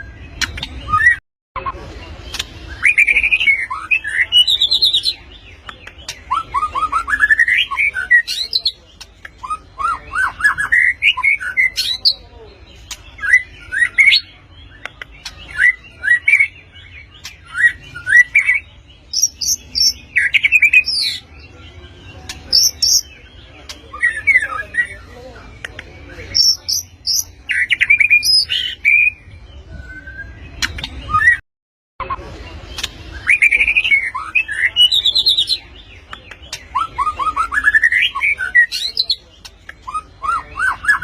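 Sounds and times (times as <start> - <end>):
bird singing whistled phrases: 26.4 - 31.4.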